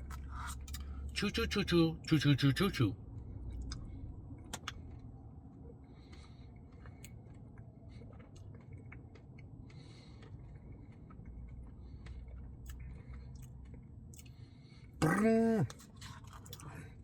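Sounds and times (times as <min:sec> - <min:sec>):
close chewing: 0:03.5 - 0:17.0.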